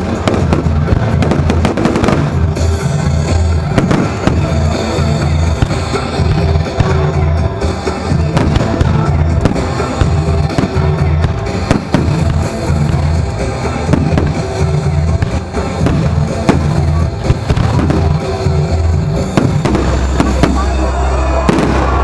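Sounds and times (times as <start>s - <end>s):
fireworks bangs and crackles: 0.0s - 22.0s
loud music with heavy bass: 0.0s - 22.0s.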